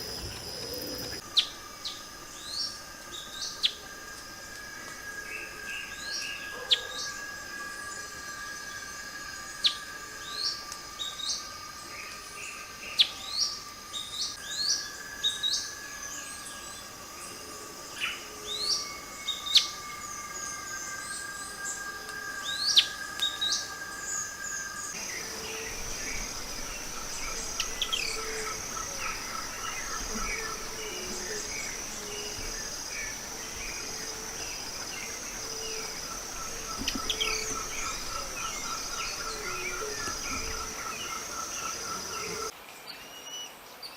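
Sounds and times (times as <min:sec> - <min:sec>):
fast pulsing chirp: 0:00.0 - 0:01.2
forest birds calling: 0:00.0 - 0:03.8, 0:12.1 - 0:43.9
high insect buzz: 0:00.0 - 0:42.5
insect trill: 0:00.0 - 0:42.5.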